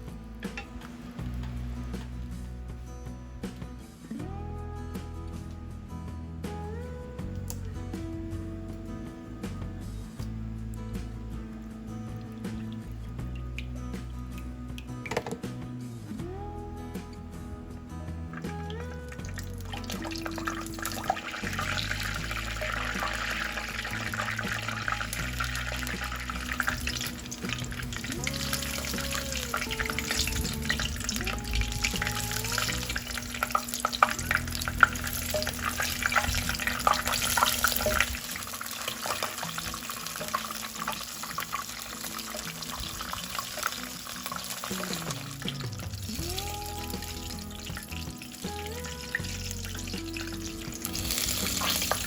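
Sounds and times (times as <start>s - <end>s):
background music: 0.0s - 52.0s
food sizzling in a pan: 19.2s - 52.0s.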